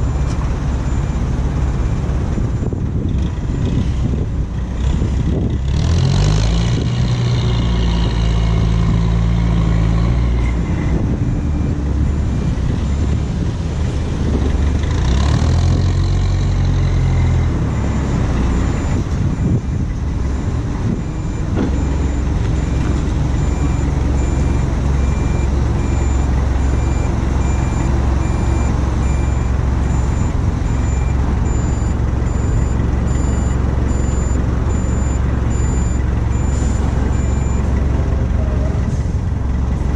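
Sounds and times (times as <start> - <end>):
reversing alarm beeping: 0.0 - 2.8, 11.3 - 13.3, 15.1 - 37.8
diesel engine running under load: 0.0 - 39.9.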